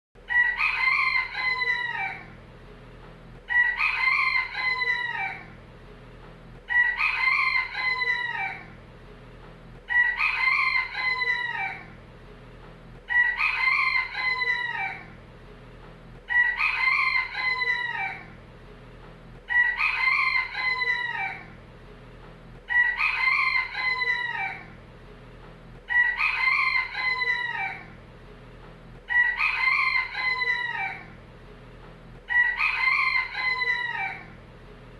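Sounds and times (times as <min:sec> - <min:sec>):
faint low hum: 0:00.2 - 0:34.9
rooster crowing: 0:00.3 - 0:02.4, 0:03.5 - 0:05.6, 0:06.7 - 0:08.8, 0:09.9 - 0:12.0, 0:13.1 - 0:15.2, 0:16.3 - 0:18.4, 0:19.5 - 0:21.6, 0:22.7 - 0:24.8, 0:25.9 - 0:28.0, 0:29.0 - 0:31.2, 0:32.2 - 0:34.4.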